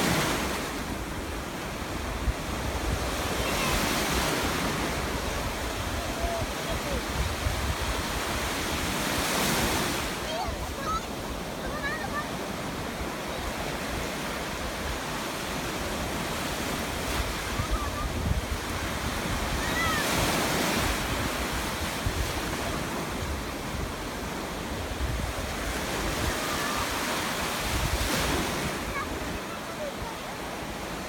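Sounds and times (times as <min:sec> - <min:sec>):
wind rumbling on microphone: 0:04.6 - 0:09.0, 0:17.2 - 0:20.0.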